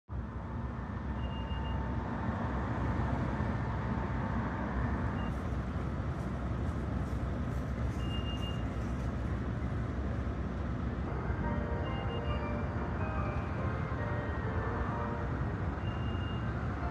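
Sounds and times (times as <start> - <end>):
tram running with low rumble: 0.1 - 16.9.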